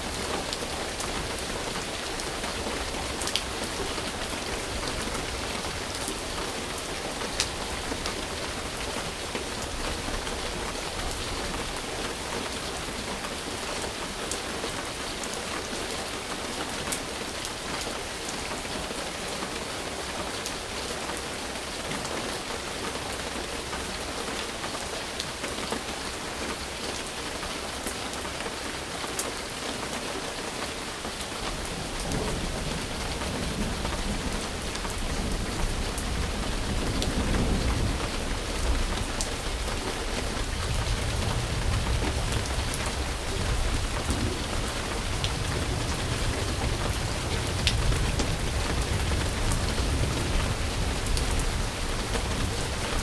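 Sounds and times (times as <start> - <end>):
heavy rain falling: 0.0 - 53.0
thunder rumbling: 31.4 - 53.0.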